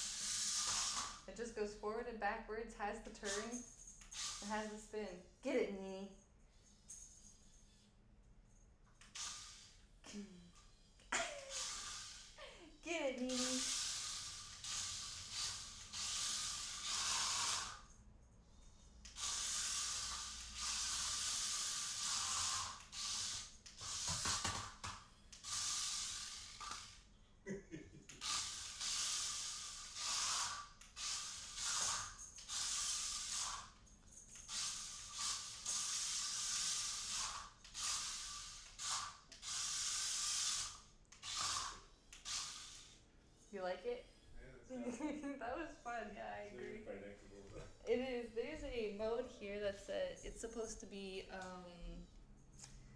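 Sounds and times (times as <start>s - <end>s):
small electric motors whirring: 0.0s - 1.5s, 3.1s - 5.2s, 8.9s - 27.1s, 28.1s - 43.0s.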